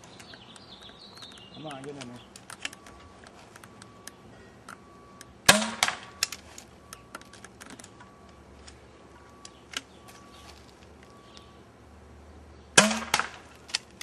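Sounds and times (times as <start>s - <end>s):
paintball pistol clacking: 0.1s - 4.8s, 12.8s - 14.0s.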